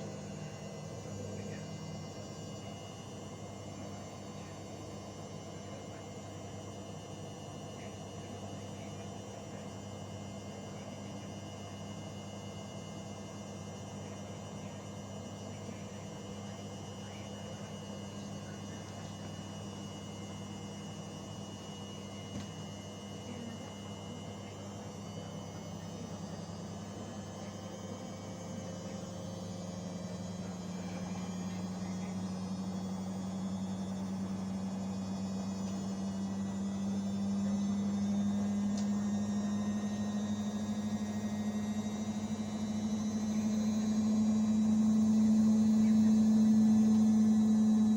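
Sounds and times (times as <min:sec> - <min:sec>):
washing machine motor humming: 0:15.7 - 0:47.9.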